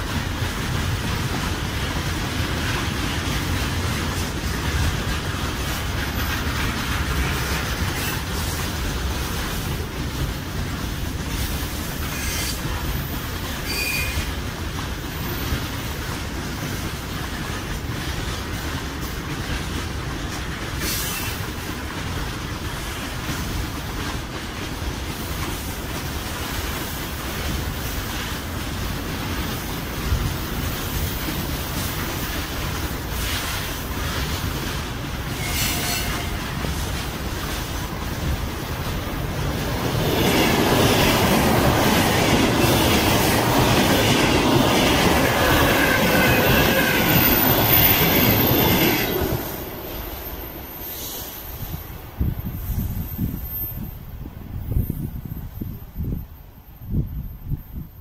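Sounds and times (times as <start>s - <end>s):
wheels clicking over rail joints: 0.0s - 50.6s
train wheels rumbling on rail: 0.0s - 58.0s
high wheel squeal: 13.6s - 14.3s, 35.3s - 36.4s, 45.2s - 54.0s.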